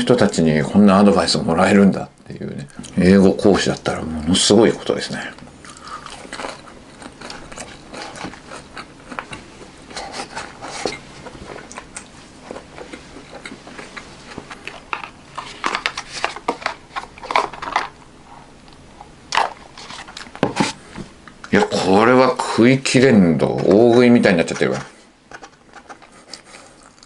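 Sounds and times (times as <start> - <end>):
crunchy chewing: 5.4 - 17.8, 25.8 - 27.0.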